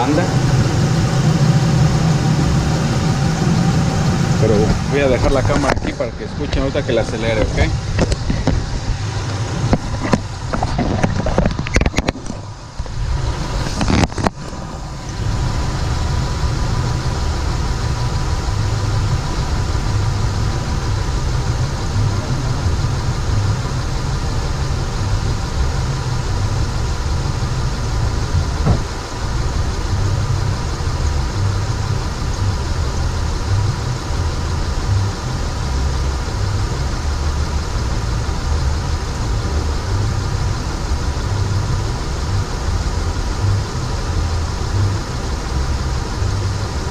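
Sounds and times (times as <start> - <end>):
car engine running: 0.0 - 46.9
knocks and handling noises: 9.6 - 12.5.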